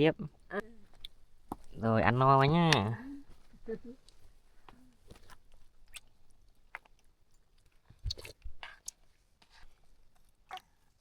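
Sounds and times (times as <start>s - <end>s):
chewing: 4.1s - 11.0s.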